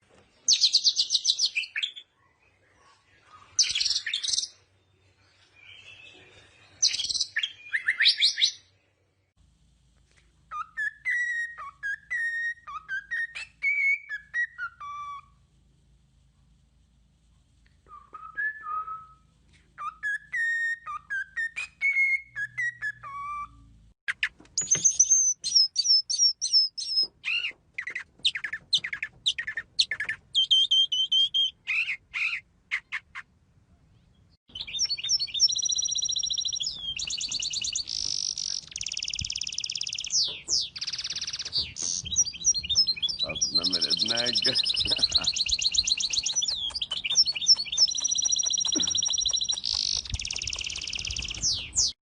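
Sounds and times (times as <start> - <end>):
birds singing: 0.4 - 8.8, 19.8 - 33.3, 33.9 - 52.0
whistled bird phrases: 5.6 - 8.6, 17.9 - 23.7, 34.5 - 52.0
high rolling bird trill: 34.5 - 51.9
high chirps and trills: 34.5 - 52.0.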